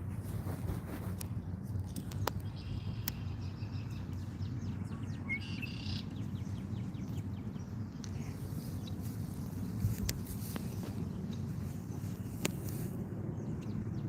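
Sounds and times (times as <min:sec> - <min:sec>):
birds chirping and twittering: 0:00.0 - 0:14.0
low outdoor rumble: 0:00.0 - 0:14.0.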